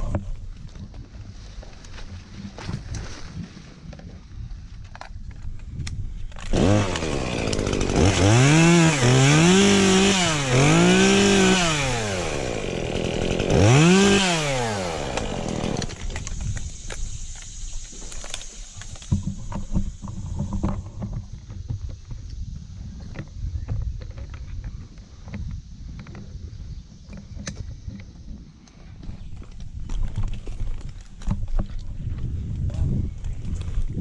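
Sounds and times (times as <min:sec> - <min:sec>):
chainsaw revving: 0:06.4 - 0:16.4.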